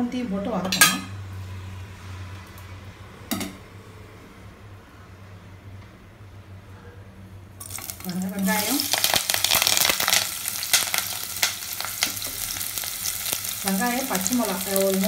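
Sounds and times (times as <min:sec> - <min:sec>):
vegetables sizzling in hot oil: 0:07.6 - 0:15.0.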